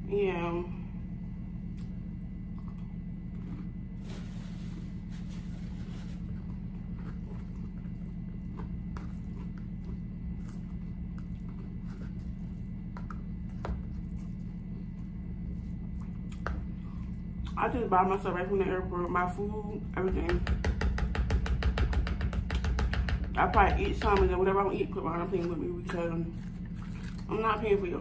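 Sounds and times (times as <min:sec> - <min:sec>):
steady low hum: 0:00.0 - 0:28.0
crunchy chewing: 0:01.7 - 0:04.2, 0:05.6 - 0:17.6.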